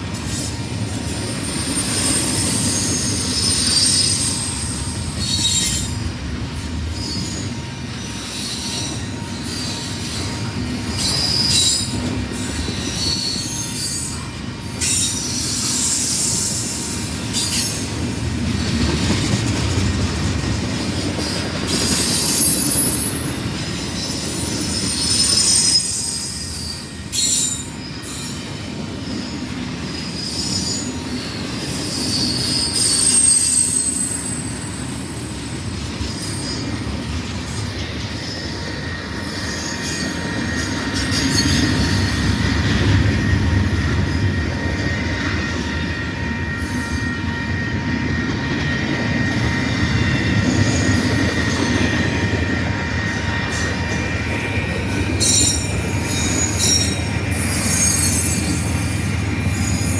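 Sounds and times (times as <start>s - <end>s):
freight train rumbling: 0.0s - 59.9s
train wheel squeal: 0.0s - 59.9s.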